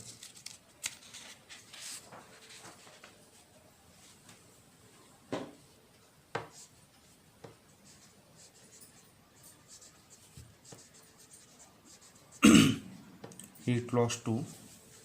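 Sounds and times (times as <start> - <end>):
pen scratching on paper: 7.8 - 12.4.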